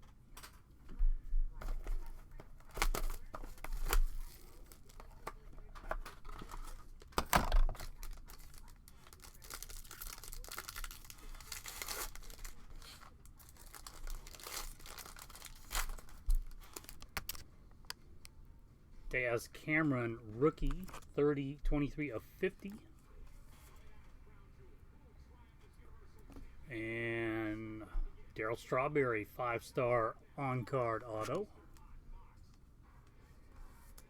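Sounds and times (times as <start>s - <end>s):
packaging tearing and crinkling: 1.6s - 17.4s.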